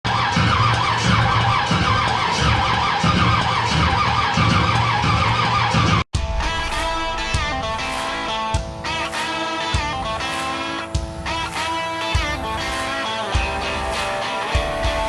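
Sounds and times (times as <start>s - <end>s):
loud engine uneven pulsing: 0.1s - 6.0s
electric guitar music: 0.1s - 15.0s.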